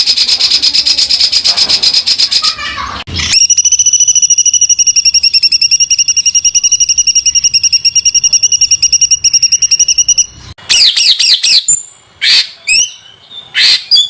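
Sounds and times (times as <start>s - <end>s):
songbird fast trill: 3.2s - 14.0s.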